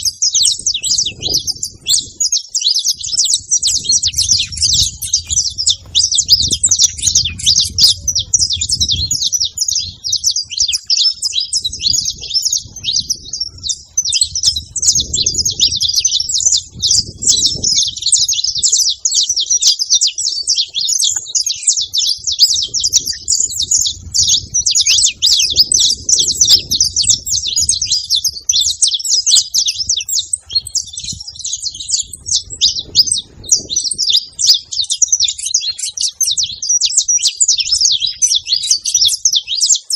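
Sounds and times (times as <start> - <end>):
finch singing high chirps: 0.0 - 39.9.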